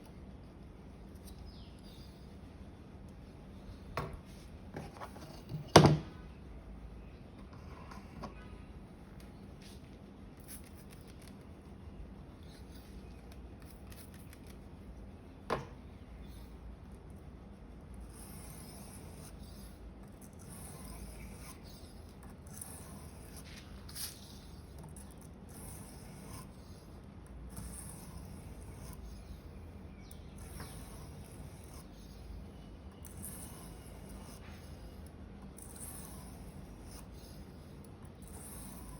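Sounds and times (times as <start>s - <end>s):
knife scraping on whetstone: 18.1s - 34.9s, 35.6s - 38.9s.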